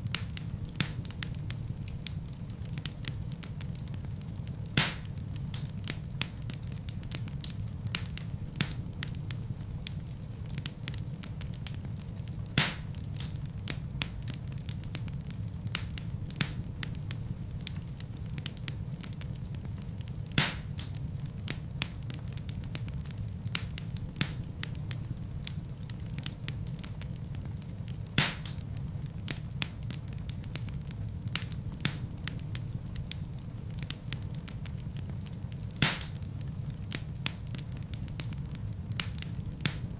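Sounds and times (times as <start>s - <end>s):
fireplace fire crackling: 0.0s - 39.9s
loud fire pops: 0.0s - 39.9s.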